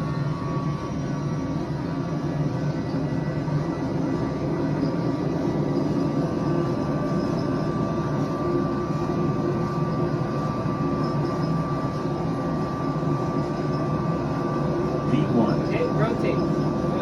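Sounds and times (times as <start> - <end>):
thin steady whine: 0.0 - 17.0
jet engines rumbling: 11.7 - 17.0.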